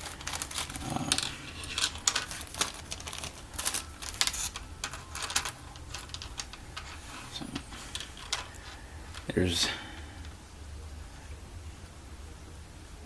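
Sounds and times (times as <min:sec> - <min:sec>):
packaging rustle: 0:00.0 - 0:10.4.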